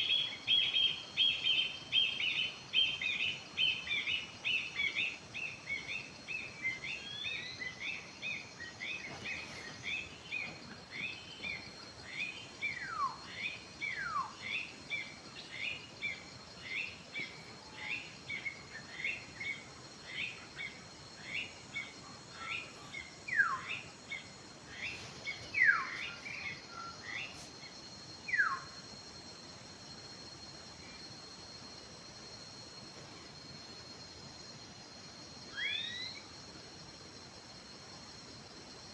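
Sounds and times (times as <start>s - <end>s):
birds chirping: 20.2s - 27.7s.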